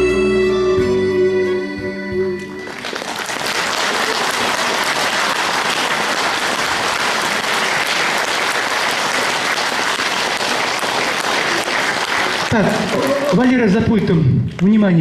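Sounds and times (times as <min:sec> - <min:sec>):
backing music: 0:00.0 - 0:03.3
audience applauding: 0:02.6 - 0:13.7.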